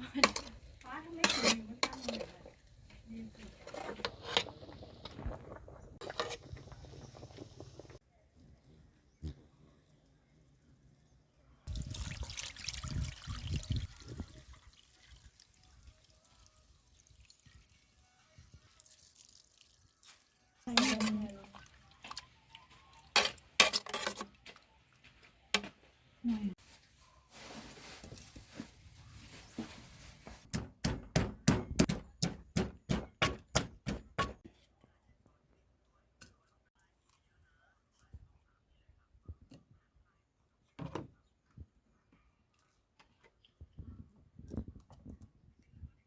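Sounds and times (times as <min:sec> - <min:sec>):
water trickle: 0:11.7 - 0:23.0
water splashing and pouring: 0:11.7 - 0:23.5
hard food preparation strikes: 0:30.4 - 0:34.5.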